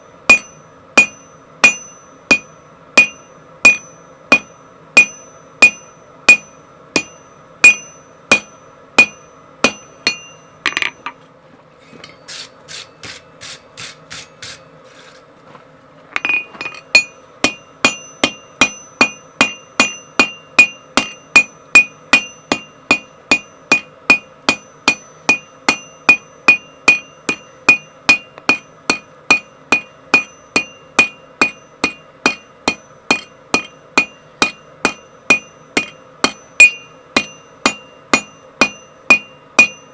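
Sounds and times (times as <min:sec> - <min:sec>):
hammer blows on anvil: 0:00.0 - 0:11.2, 0:16.2 - 0:39.9.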